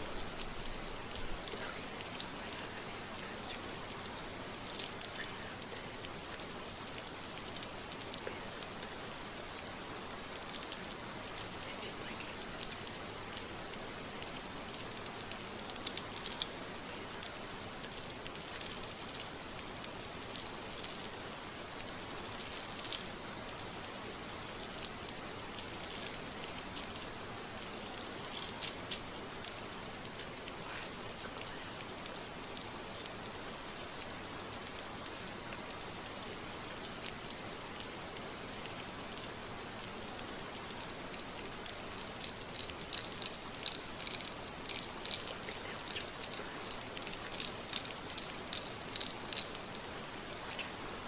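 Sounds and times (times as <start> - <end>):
fingers rustling through hair: 0.0 - 21.4, 22.1 - 23.2, 25.6 - 29.2, 39.9 - 50.8
steady rain: 0.0 - 51.0.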